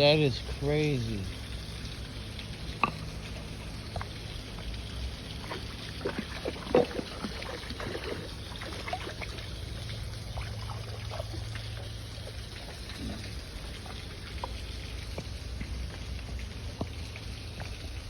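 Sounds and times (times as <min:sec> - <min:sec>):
stream and waterfall: 0:00.0 - 0:18.0
water splashes: 0:00.0 - 0:18.0.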